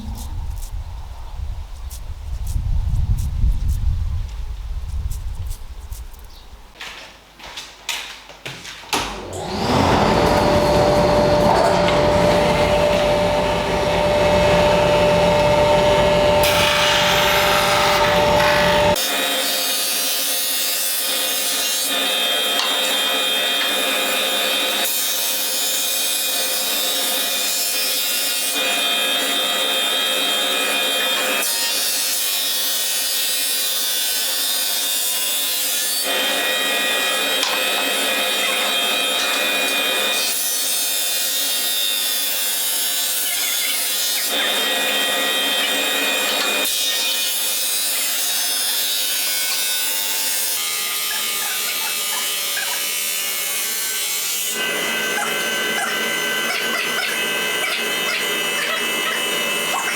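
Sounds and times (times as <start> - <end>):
power tool rasping on wood: 9.3 - 19.2, 49.0 - 59.9.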